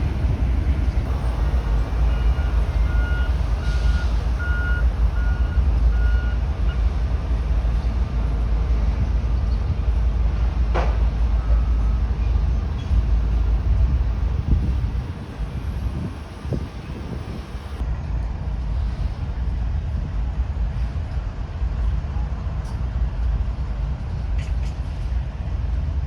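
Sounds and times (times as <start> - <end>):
vehicle backup alarm beeping: 0.0 - 6.8
heavy low rumble: 0.0 - 26.0.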